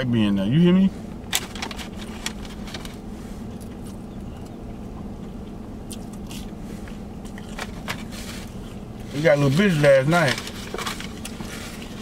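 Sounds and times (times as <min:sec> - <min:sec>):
low hum in truck cabin: 0:00.0 - 0:12.0
person biting and chewing food: 0:03.5 - 0:04.6, 0:05.3 - 0:08.8.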